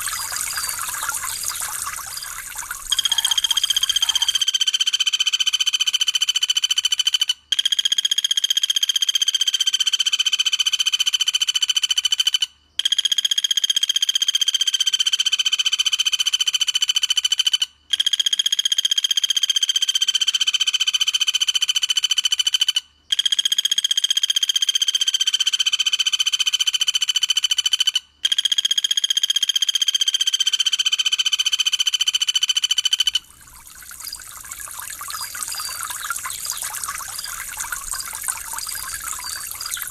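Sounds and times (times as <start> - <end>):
trickling water: 0.0 - 4.4, 33.1 - 39.9.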